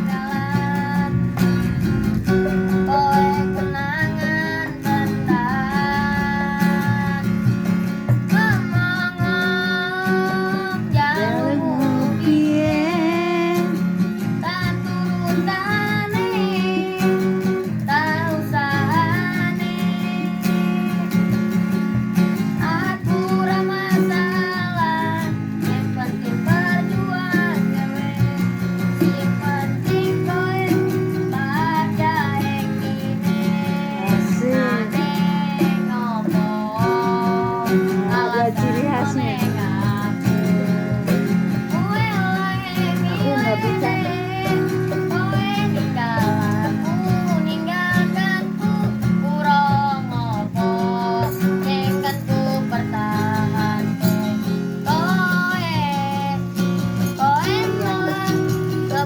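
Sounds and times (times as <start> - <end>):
child singing: 0.0 - 21.7, 22.3 - 59.0
strummed acoustic guitar: 0.0 - 59.0.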